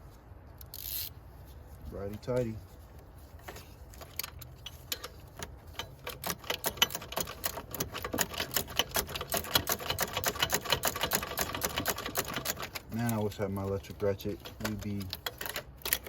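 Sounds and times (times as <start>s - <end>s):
ratchet wrench clicking: 0.6s - 1.1s, 4.2s - 16.0s.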